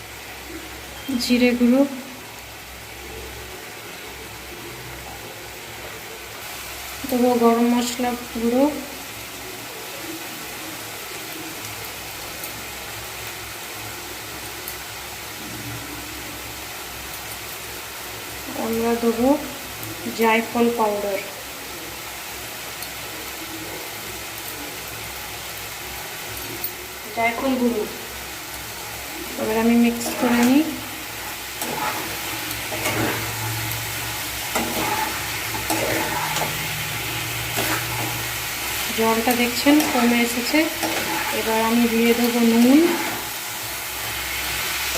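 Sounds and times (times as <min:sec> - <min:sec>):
food sizzling in a pan: 0:00.0 - 0:44.9
spatula scraping a pan: 0:29.4 - 0:43.3.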